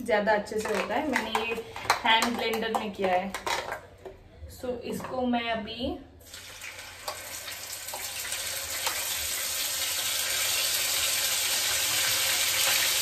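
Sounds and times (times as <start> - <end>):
paste sizzling in hot oil: 6.3 - 13.0.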